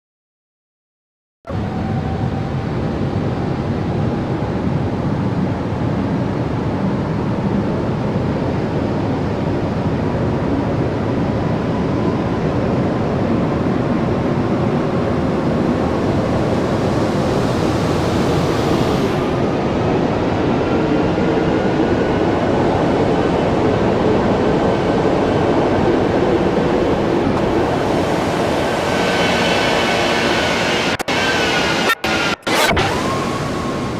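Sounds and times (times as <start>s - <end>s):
rushing vehicle noise: 1.5s - 22.1s, 22.7s - 33.9s
faint rising tone: 13.5s - 19.8s, 26.3s - 33.9s.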